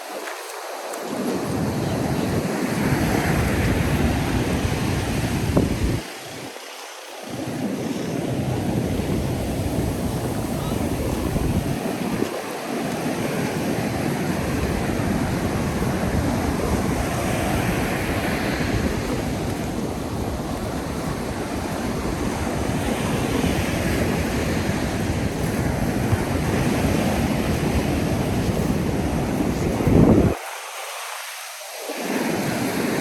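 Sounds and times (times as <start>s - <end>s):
ocean surf breaking: 0.0s - 33.0s
wind buffeting microphone: 1.1s - 6.6s, 7.2s - 30.5s.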